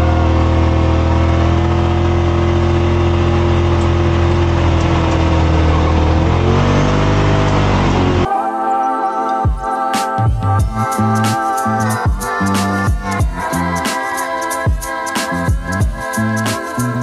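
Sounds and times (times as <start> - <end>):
off-road vehicle engine revving: 0.0 - 8.3, 10.2 - 17.0
music: 8.2 - 17.0.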